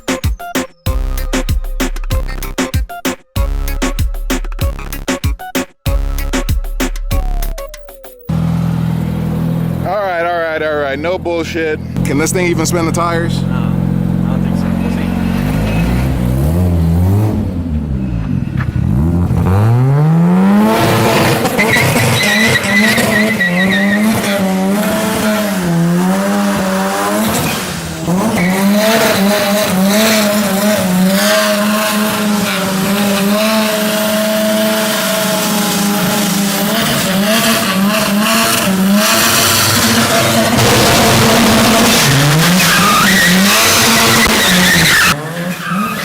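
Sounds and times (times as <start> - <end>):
car engine revving hard: 12.0 - 46.0
tires squealing in a burnout: 14.4 - 46.0.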